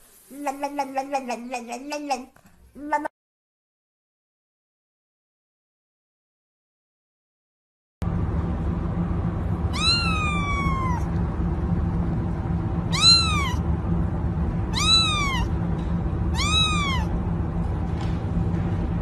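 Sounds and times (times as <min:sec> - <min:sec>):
low background hum: 0:00.0 - 0:03.1, 0:08.0 - 0:19.0
cat meowing: 0:09.7 - 0:11.1, 0:12.9 - 0:13.6, 0:14.7 - 0:15.5, 0:16.3 - 0:17.1.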